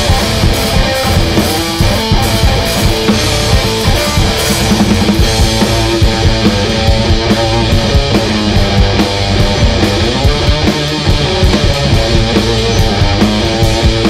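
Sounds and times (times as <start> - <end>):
electric guitar: 0.0 - 14.0
steady drum beat: 0.0 - 14.0.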